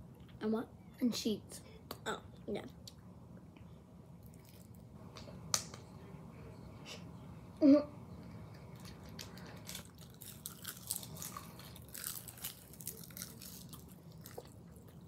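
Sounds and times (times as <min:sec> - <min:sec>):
crunching seaweed sheets: 0:09.1 - 0:14.5.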